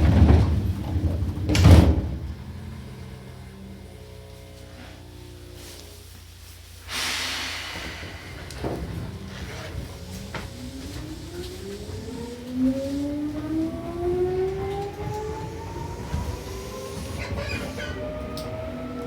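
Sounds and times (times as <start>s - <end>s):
electric train motors whining: 0.6s - 5.9s, 7.5s - 19.0s
running gear rumble: 7.5s - 19.0s.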